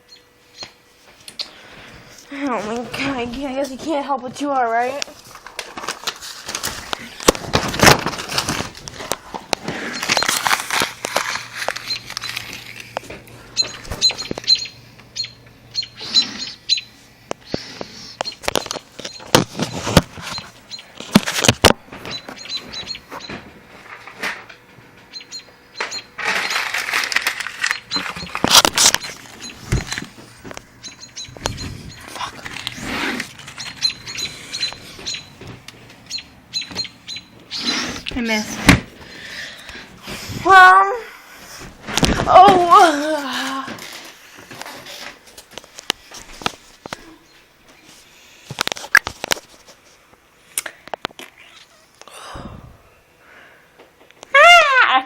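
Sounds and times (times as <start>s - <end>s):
small birds chirping: 0.0s - 0.8s, 11.8s - 12.5s, 13.5s - 19.4s, 20.2s - 20.9s, 22.0s - 23.4s, 25.1s - 26.8s, 27.6s - 30.0s, 30.7s - 39.6s.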